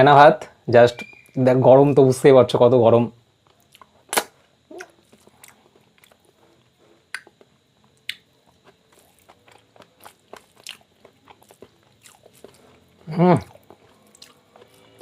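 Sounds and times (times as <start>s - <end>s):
chewing soft food: 3.3s - 15.0s
wet mouth clicks: 3.7s - 5.6s.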